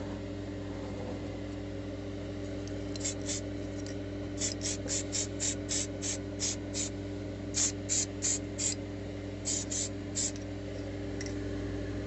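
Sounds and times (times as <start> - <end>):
steady low hum: 0.0 - 12.0
aerosol spray bursts: 4.4 - 6.9, 7.6 - 8.8, 9.4 - 10.4.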